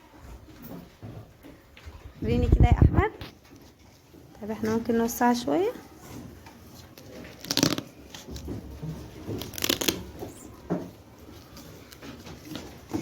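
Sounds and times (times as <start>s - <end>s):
cards rustling: 9.2s - 10.4s.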